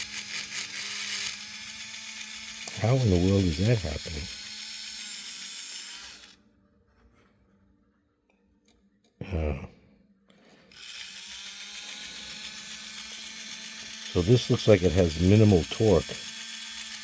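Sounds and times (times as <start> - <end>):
small electric motor whirring: 0.0 - 6.4, 10.7 - 17.0.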